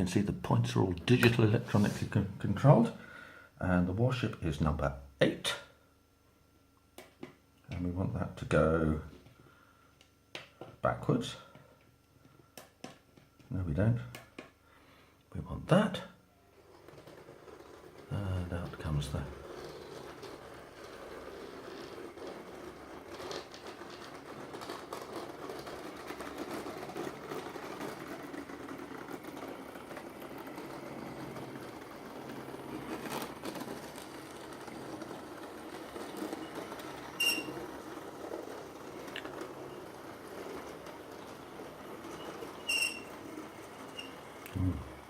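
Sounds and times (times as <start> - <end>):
small motor whir: 16.5 - 45.0
wheels clicking over rails: 16.6 - 45.0.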